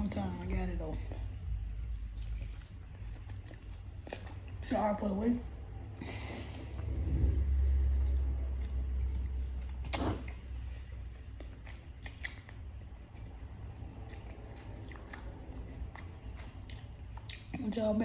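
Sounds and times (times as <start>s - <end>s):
low rumble: 0.0s - 17.3s
person chewing crispy chicken: 1.5s - 4.6s, 6.0s - 17.6s
wet mouth clicks: 7.3s - 10.4s, 11.2s - 13.0s.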